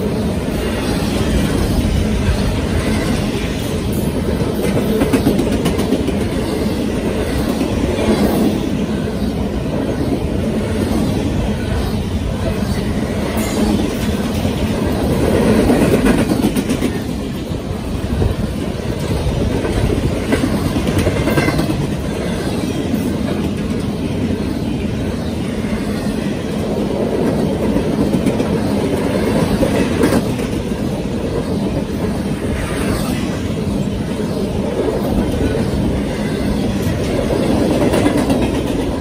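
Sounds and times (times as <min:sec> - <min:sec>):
freight train wheels rumbling on rail: 0:00.0 - 0:39.0.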